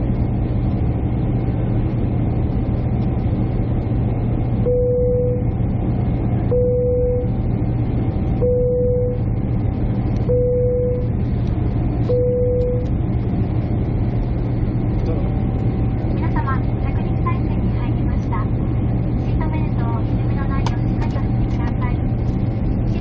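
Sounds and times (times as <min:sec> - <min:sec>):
airliner cabin engine hum: 0:00.0 - 0:23.0
short single-pitch beep: 0:04.7 - 0:05.4, 0:06.5 - 0:07.3, 0:08.4 - 0:09.2, 0:12.1 - 0:12.9.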